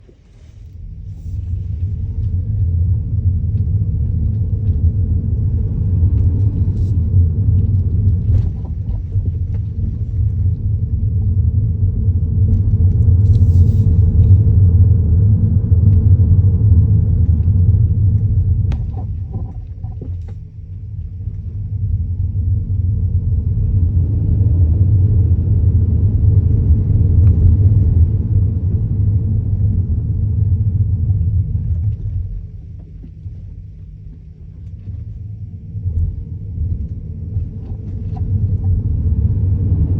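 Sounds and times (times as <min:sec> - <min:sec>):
low road rumble: 0:00.0 - 0:39.9.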